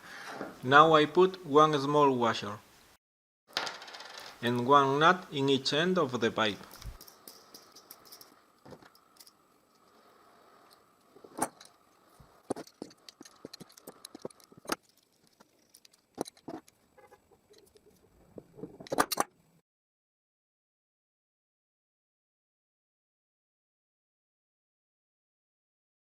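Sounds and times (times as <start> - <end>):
metal washers and nuts clinking: 6.6 - 10.0.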